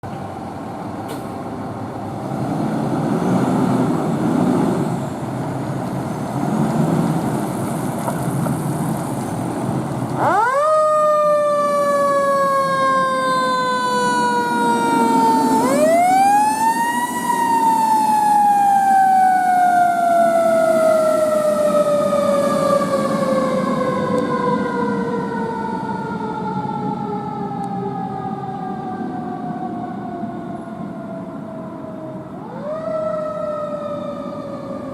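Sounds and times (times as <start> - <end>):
fire engine rumbling: 0.0 - 34.9
siren winding up and down: 10.2 - 24.5.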